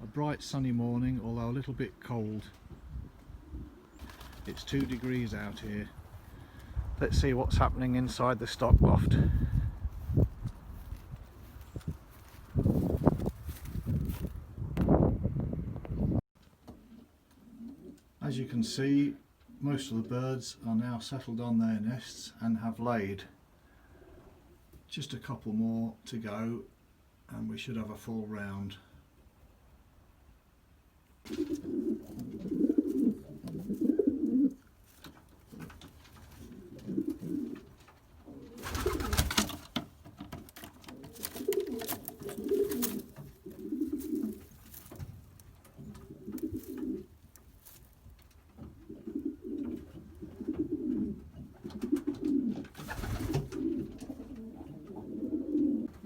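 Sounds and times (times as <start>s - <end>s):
pigeons cooing: 3.2s - 6.7s, 9.2s - 13.6s, 16.8s - 18.1s, 31.3s - 47.9s, 48.6s - 56.0s.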